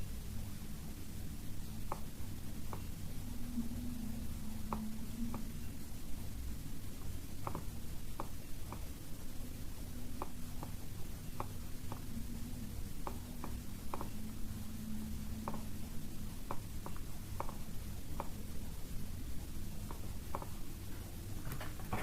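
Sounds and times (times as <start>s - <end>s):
faint low hum: 0.0s - 22.0s
computer mouse clicking: 7.0s - 8.9s, 13.0s - 14.2s, 15.4s - 15.7s, 16.4s - 18.4s, 19.8s - 20.6s.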